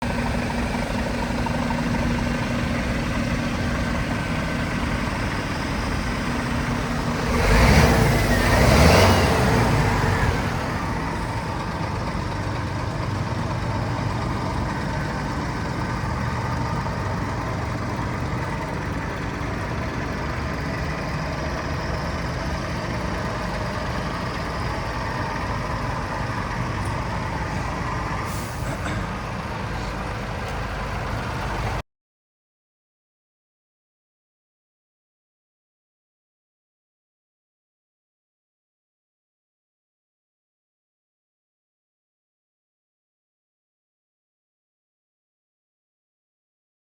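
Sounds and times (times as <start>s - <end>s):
diesel truck engine idling: 0.0s - 31.8s.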